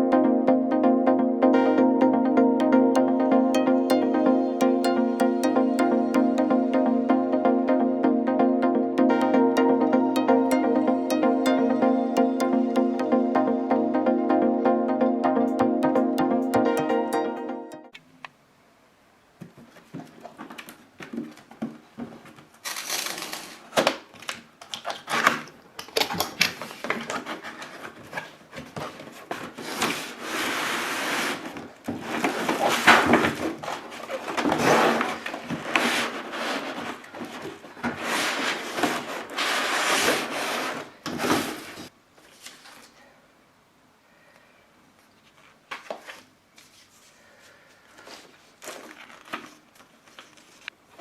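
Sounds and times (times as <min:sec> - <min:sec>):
packaging rustling and scraping: 0:22.2 - 0:24.3, 0:26.5 - 0:42.9, 0:48.0 - 0:50.7.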